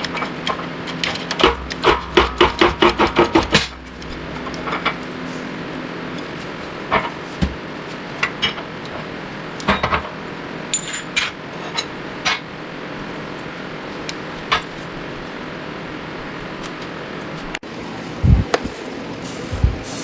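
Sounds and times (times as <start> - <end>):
metal tools clinking: 10.7 - 11.9
shop background hiss: 17.6 - 20.0.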